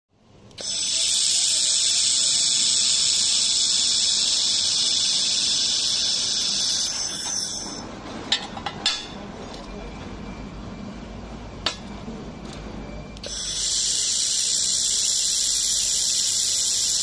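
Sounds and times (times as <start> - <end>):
laser welding hiss: 0.6 - 7.8, 13.2 - 17.0.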